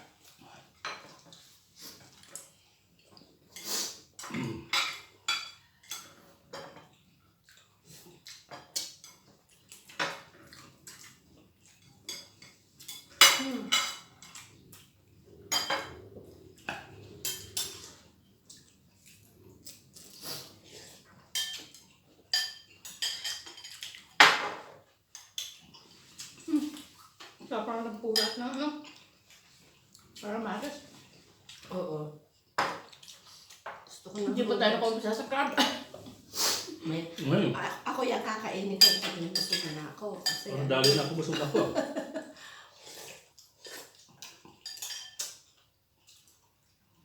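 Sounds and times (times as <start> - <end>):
cutlery clinking on plates: 4.2 - 7.0, 15.5 - 16.0, 21.2 - 25.6, 38.8 - 41.6, 43.8 - 45.5.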